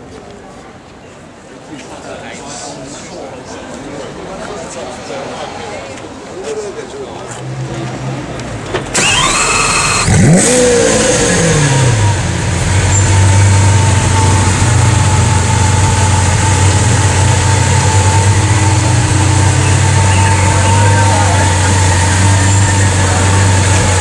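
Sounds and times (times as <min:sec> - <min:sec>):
car engine revving and idling: 0:07.3 - 0:24.0
starter motor whine: 0:08.9 - 0:12.2.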